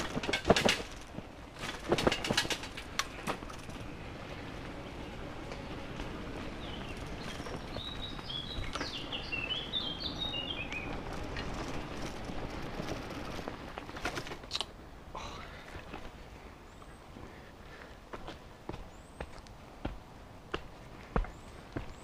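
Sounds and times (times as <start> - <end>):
bicycle tyres on path: 0.0 - 22.0
songbird chirping: 3.7 - 12.0, 15.8 - 22.0.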